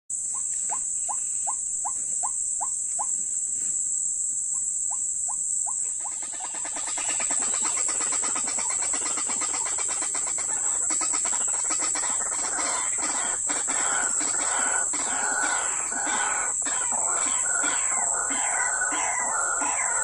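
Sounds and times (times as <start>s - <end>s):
high-pitched hiss: 0.2s - 20.0s
babble of overlapping croaks: 5.6s - 20.0s
waterhen kwak calls: 6.0s - 20.0s.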